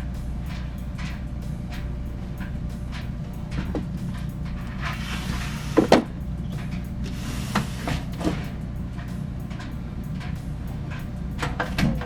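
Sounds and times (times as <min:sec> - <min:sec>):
clothes dryer running: 0:00.0 - 0:12.0
dryer knocking: 0:00.0 - 0:12.0.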